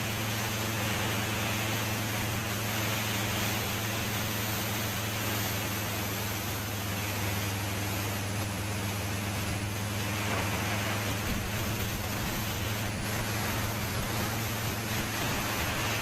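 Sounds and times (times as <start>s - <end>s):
motorcycle engine cruising: 0.0s - 16.0s
wind noise on microphone: 9.1s - 16.0s.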